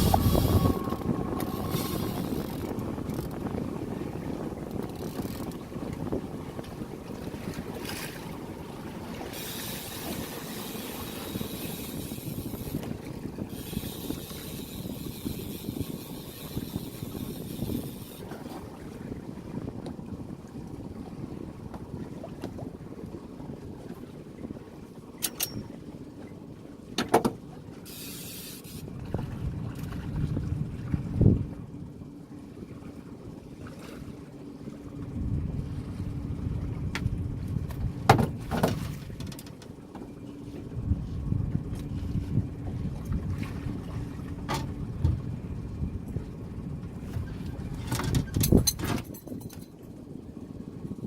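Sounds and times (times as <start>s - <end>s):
steady low rumble: 0.0s - 14.0s, 40.7s - 47.8s
boat engine rumble: 0.0s - 51.0s
water noise: 0.0s - 51.0s
wind: 0.0s - 51.0s.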